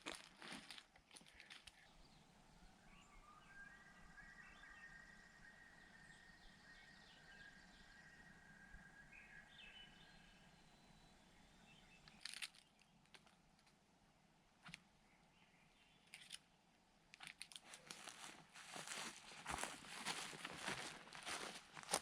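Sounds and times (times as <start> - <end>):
crunching rustles: 0.0 - 1.8, 17.1 - 22.0.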